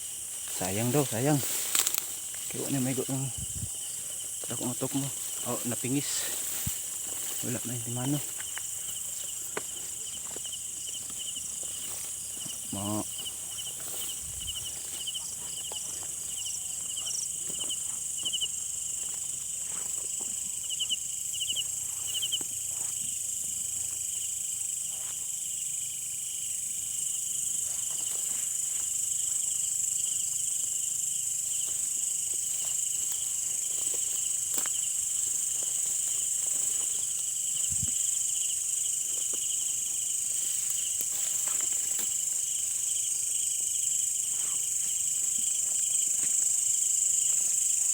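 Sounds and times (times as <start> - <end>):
crickets chirping: 0.0 - 47.9
insects droning: 0.0 - 47.9
faint clicks and rustles: 1.4 - 2.7.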